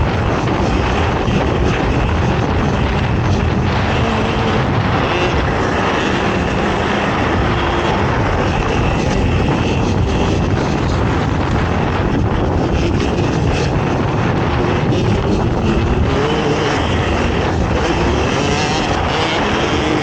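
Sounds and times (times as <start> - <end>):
quad engine running hard: 0.0 - 20.0
wind on microphone: 0.0 - 20.0.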